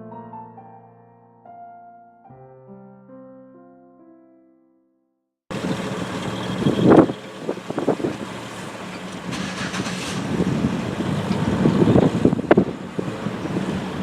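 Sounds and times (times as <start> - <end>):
car driving hum: 5.5 - 14.0.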